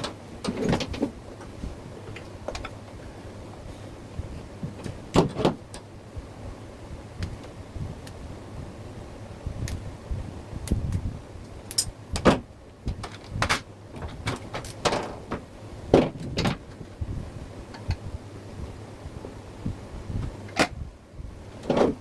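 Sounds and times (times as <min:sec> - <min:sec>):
knocks clunks and scrapes: 0:00.0 - 0:02.8, 0:21.6 - 0:22.0
refrigerator compressor humming: 0:00.0 - 0:22.0.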